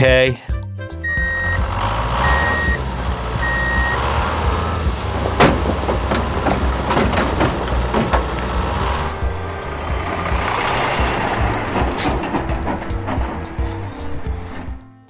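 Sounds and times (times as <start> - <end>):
sharp clack: 0.9 - 14.8
rc truck engine rumble: 1.0 - 14.7
reversing beeper: 1.1 - 1.6, 2.2 - 2.8, 3.4 - 5.2.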